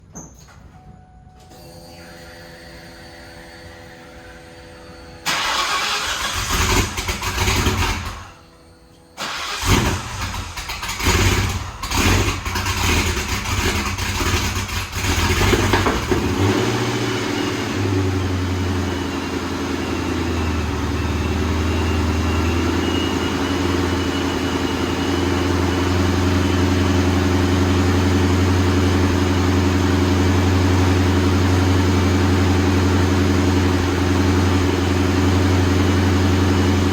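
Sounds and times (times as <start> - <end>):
engine throttle blips: 4.9 - 36.9
car engine starting and idling: 5.2 - 36.9.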